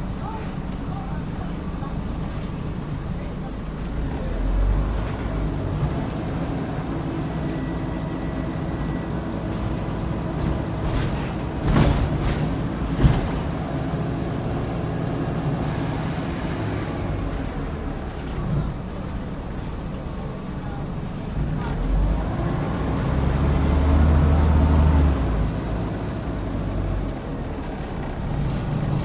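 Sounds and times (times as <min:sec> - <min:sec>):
bus engine running: 0:00.0 - 0:29.0
air hiss: 0:15.6 - 0:17.0.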